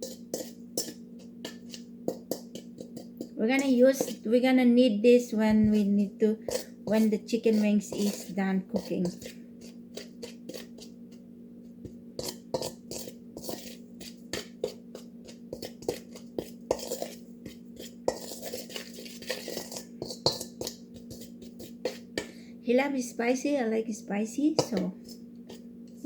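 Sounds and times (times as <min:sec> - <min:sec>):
spoon clinking against a bowl: 0:00.0 - 0:04.2, 0:06.5 - 0:09.3, 0:15.5 - 0:22.0, 0:24.6 - 0:25.1
steady low hum: 0:00.0 - 0:26.0.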